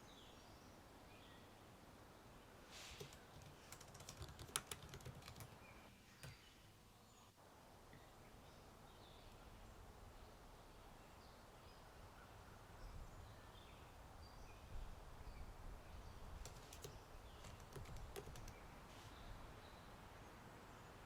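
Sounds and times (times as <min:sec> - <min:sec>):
distant birds chirping: 0:02.1 - 0:21.0
typing on computer keyboard: 0:03.0 - 0:05.6, 0:16.4 - 0:18.6
low wind rumble: 0:09.5 - 0:21.0.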